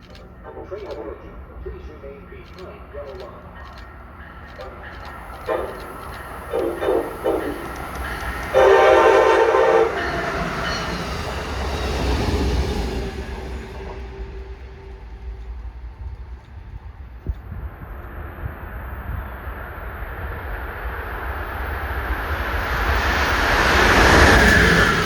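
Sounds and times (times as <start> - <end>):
train rumble: 0.0 - 25.0
train horn: 5.4 - 11.0.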